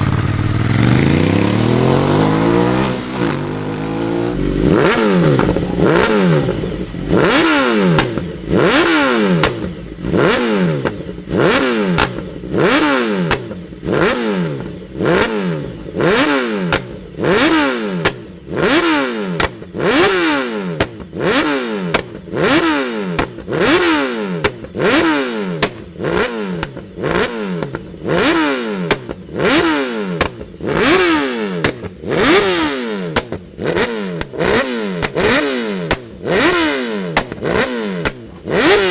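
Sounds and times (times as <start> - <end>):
motorcycles passing by: 0.0 - 8.1.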